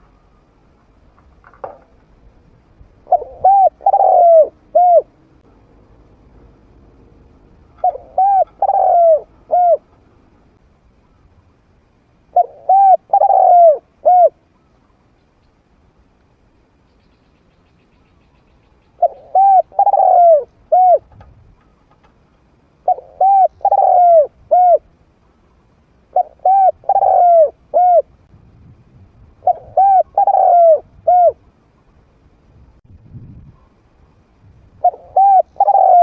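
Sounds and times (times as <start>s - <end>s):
dove cooing: 3.0s - 5.2s, 7.7s - 10.0s, 12.3s - 14.5s, 19.0s - 21.8s, 22.8s - 24.9s, 26.1s - 28.1s, 29.4s - 31.4s, 34.8s - 36.0s.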